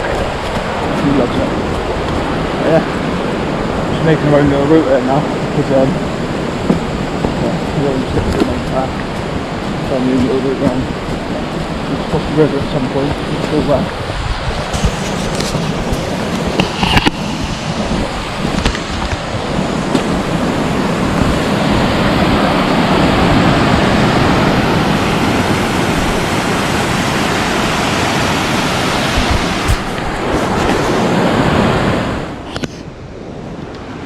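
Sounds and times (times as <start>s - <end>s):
river rushing loudly: 0.0s - 34.0s.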